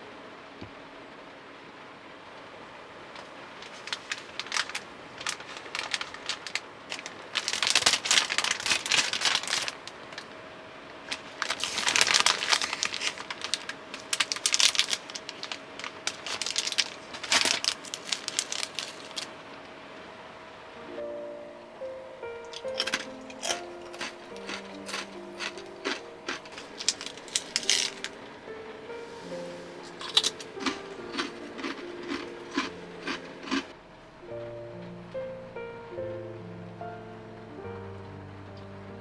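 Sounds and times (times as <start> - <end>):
plastic packaging crinkling: 3.1 - 19.6, 22.3 - 33.8.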